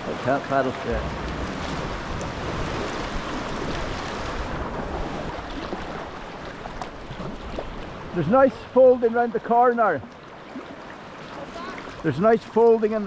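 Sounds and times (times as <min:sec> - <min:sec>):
sea water sloshing around kayak: 0:00.0 - 0:12.6
wind on microphone: 0:00.9 - 0:06.1.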